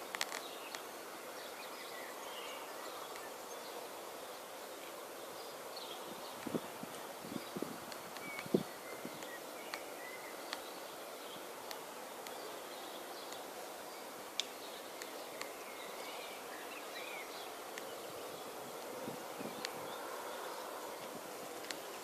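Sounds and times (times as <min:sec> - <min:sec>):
small clicks: 0:00.1 - 0:00.8, 0:21.0 - 0:22.0.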